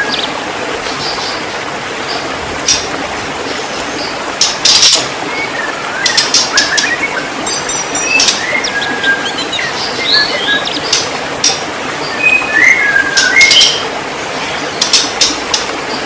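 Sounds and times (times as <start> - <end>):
bird singing whistled notes: 4.8 - 11.0, 12.1 - 13.8.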